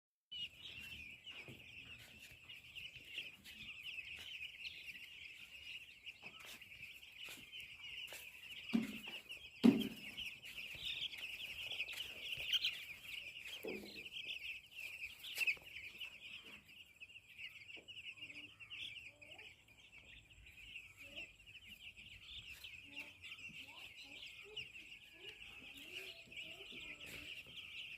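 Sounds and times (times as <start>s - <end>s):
chicks peeping: 0.3s - 27.9s.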